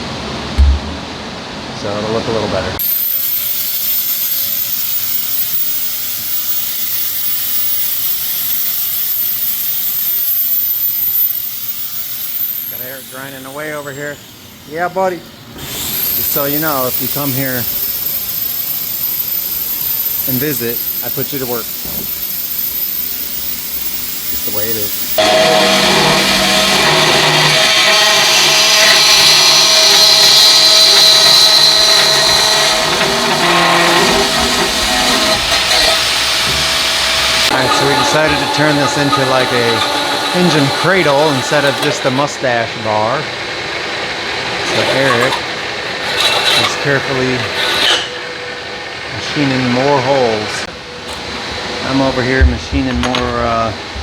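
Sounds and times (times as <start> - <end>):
pneumatic air grinder running: 2.8 - 51.3.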